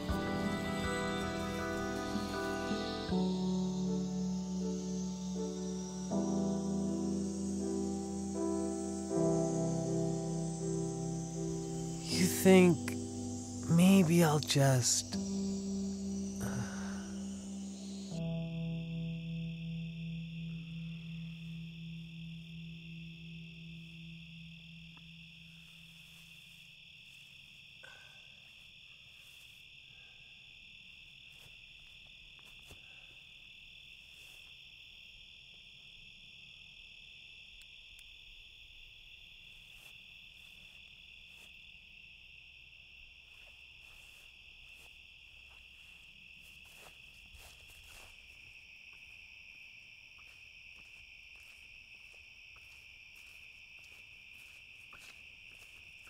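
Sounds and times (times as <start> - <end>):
low held musical tone: 0.0 - 26.1
crickets trilling: 0.0 - 56.0.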